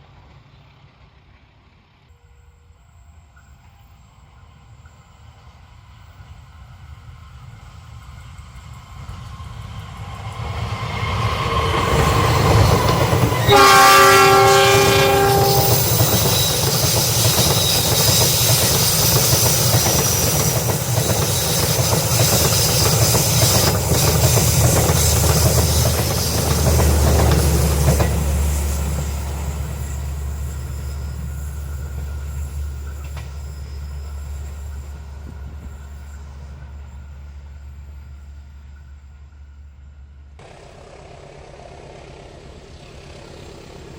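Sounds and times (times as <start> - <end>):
train wheels rumbling and clacking: 4.8 - 43.9
train horn blast: 13.4 - 17.8.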